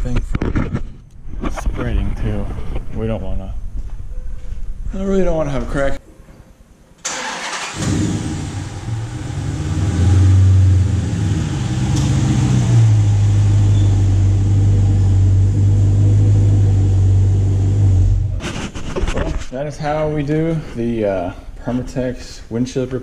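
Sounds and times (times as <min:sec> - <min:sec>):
car engine low drone: 0:07.7 - 0:18.4.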